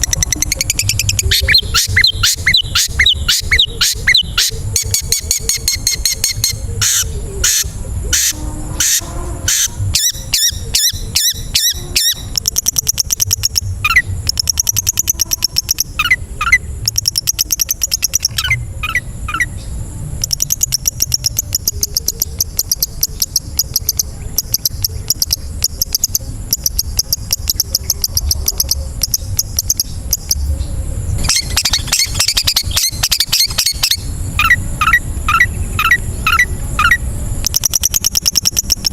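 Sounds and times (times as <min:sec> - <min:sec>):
shrike singing: 0:00.0 - 0:38.9.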